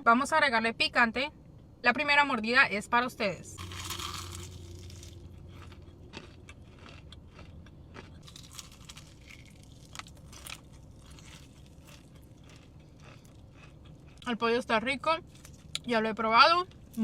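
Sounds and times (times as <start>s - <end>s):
crunching fried chicken: 3.6s - 14.3s.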